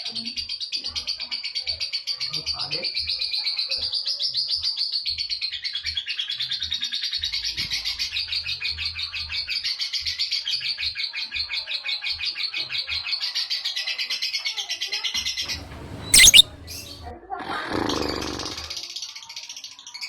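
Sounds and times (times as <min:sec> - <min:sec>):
lovebird chattering: 0:15.5 - 0:17.0.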